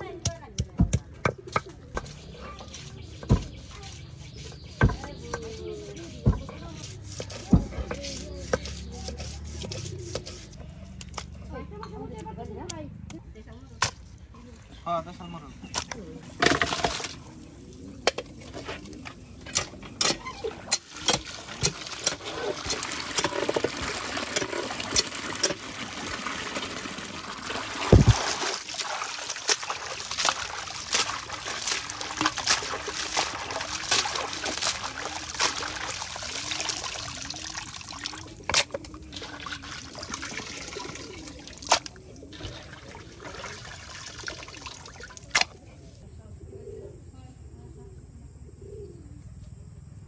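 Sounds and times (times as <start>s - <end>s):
water trickling and splashing: 20.1s - 45.6s.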